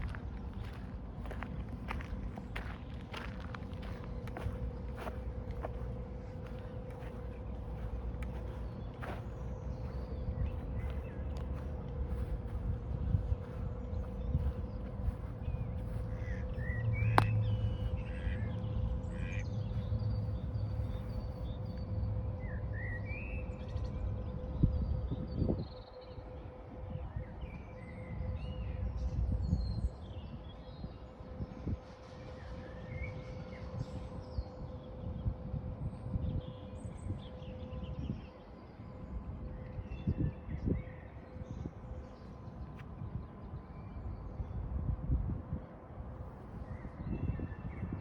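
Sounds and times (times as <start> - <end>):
birds chirping: 0.0 - 21.8
low rumble: 0.0 - 22.9
faint steady hum: 0.0 - 48.0
steady low rumble: 0.0 - 48.0.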